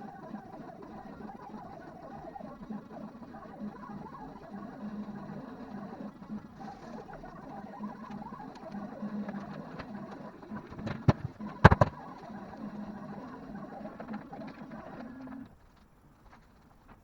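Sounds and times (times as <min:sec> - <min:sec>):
sharp knocks: 0:10.8 - 0:12.0.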